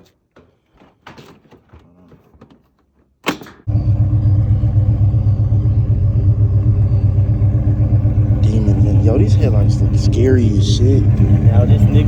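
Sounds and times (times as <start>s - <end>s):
car engine cranking and starting: 3.6s - 12.0s
car engine idling: 3.7s - 12.0s.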